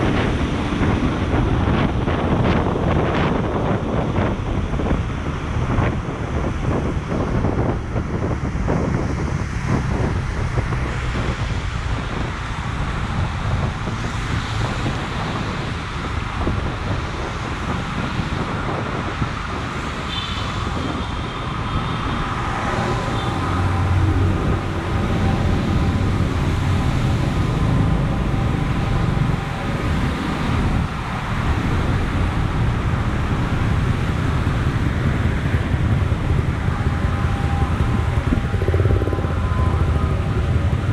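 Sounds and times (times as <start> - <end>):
vehicles rumbling past: 0.0 - 40.9
faint whine: 35.5 - 40.9.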